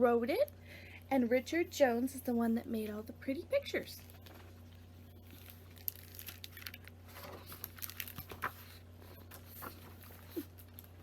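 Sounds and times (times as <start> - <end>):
book pages rustling: 5.2 - 11.0.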